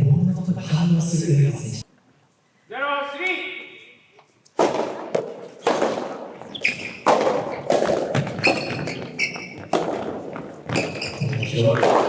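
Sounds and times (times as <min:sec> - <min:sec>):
shoes squeaking on court: 0:04.2 - 0:12.0
tennis ball struck by rackets: 0:04.6 - 0:12.0.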